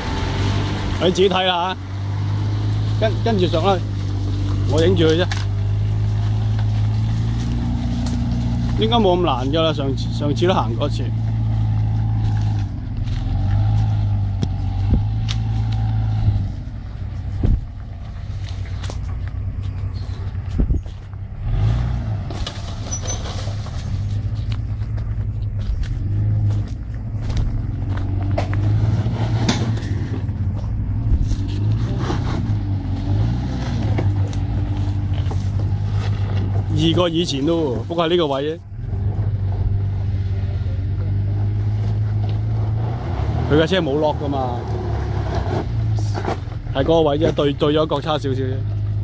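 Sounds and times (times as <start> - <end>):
engine running: 0.0 - 49.0
knocks and clunks: 22.2 - 32.7.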